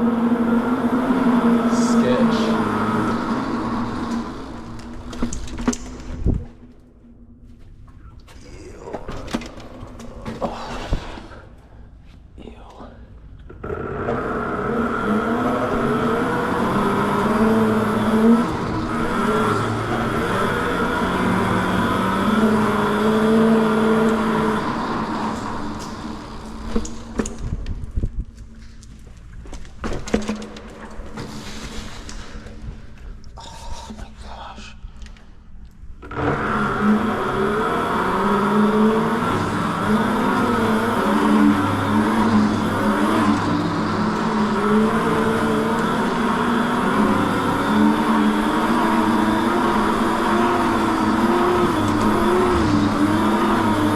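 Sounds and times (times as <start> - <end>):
mini bike motor revving: 0.0 - 6.2, 13.6 - 27.6, 36.0 - 53.9.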